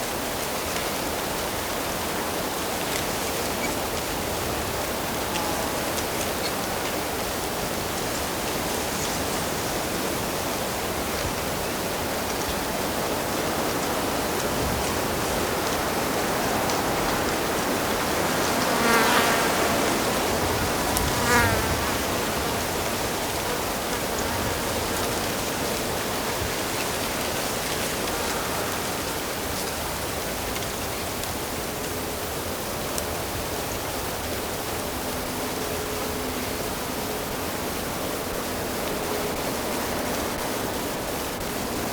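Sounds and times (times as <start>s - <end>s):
fly buzzing past: 18.2s - 22.6s.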